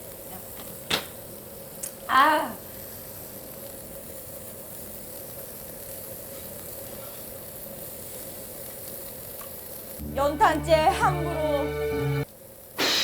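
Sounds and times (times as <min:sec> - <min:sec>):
meat sizzling on a grill: 0:00.0 - 0:10.1, 0:12.2 - 0:12.8.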